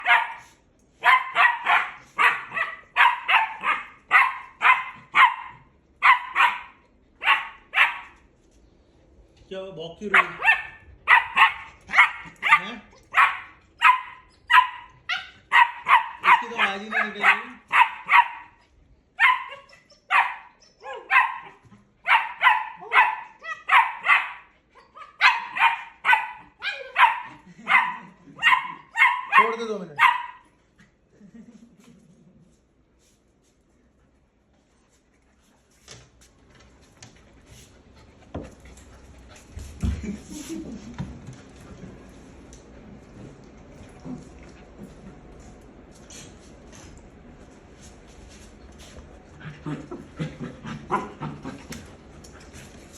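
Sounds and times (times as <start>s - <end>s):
puppy barking: 0.0s - 8.2s, 10.1s - 18.6s, 19.2s - 30.6s.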